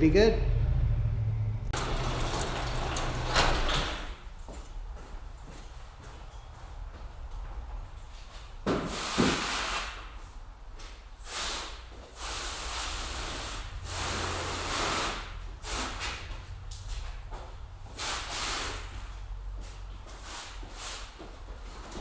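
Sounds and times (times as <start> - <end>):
hose water spraying onto car: 1.8 - 4.1.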